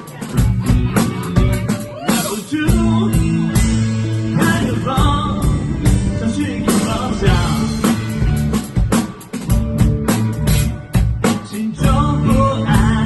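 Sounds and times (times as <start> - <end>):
person singing: 0.0 - 8.4, 11.2 - 13.0
bass guitar: 0.0 - 13.0
drum kit: 0.0 - 13.0
electric guitars: 0.0 - 13.0.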